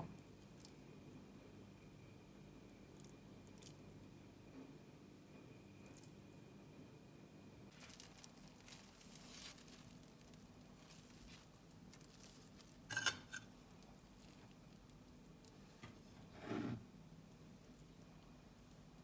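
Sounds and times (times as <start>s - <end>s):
faint rustling and handling: 7.7s - 19.0s
dish or glass clinking: 12.9s - 13.5s.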